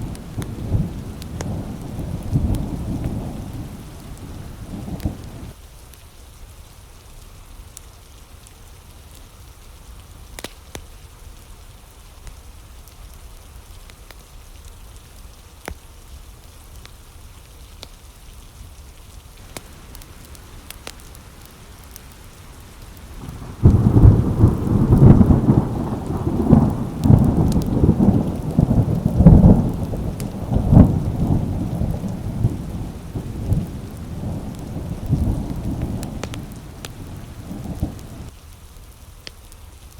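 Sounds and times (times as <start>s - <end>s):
thunder clap and rumble: 0.0s - 5.6s, 19.4s - 38.3s
steady rain: 0.0s - 39.9s.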